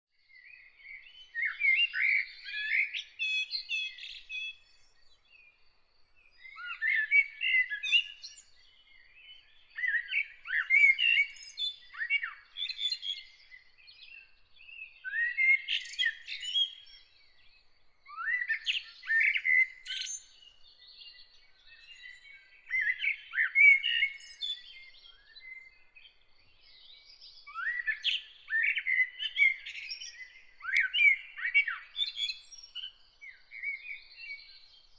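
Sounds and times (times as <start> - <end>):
songbird warbling: 27.5 - 32.9.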